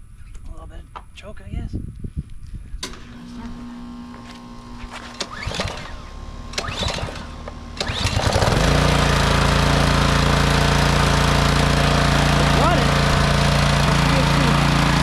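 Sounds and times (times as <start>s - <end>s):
pull starter rattling: 2.8s - 3.4s, 5.1s - 15.0s
small gas engine running: 2.8s - 15.0s.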